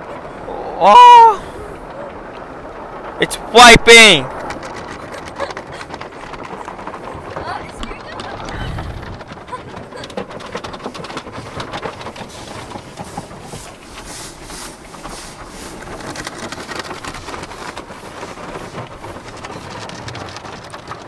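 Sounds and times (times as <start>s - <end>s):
car wash brushes and water spray: 10.5s - 21.0s.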